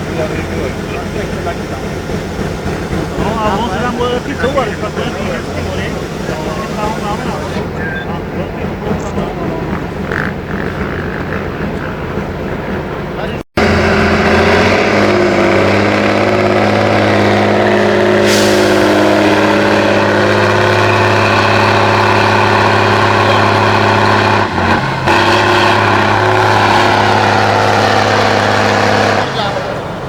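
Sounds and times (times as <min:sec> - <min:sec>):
diesel engine running under load: 0:00.0 - 0:30.0
short hiss: 0:18.2 - 0:19.2.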